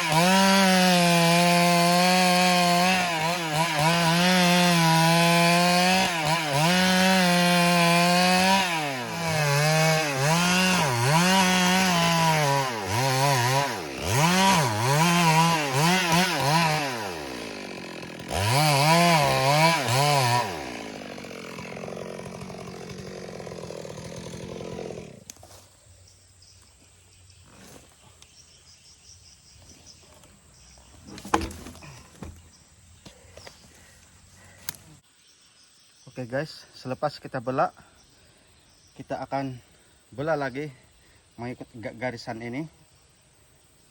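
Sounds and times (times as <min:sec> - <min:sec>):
chainsaw cutting log: 0:00.0 - 0:25.7, 0:29.6 - 0:35.0.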